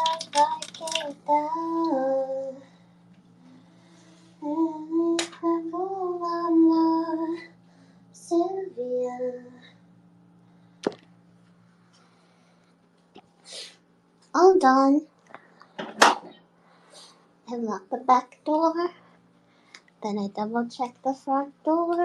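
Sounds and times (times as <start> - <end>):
woman singing wordless tune: 0.0 - 2.8, 4.3 - 7.6, 8.2 - 9.7
faint low hum: 0.0 - 22.0.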